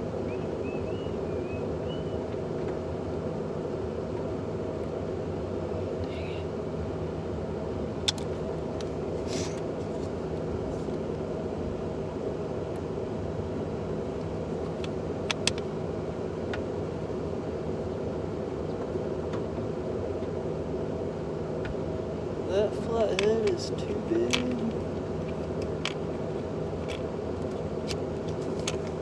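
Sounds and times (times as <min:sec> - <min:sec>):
engine-like hum: 0:00.0 - 0:29.0.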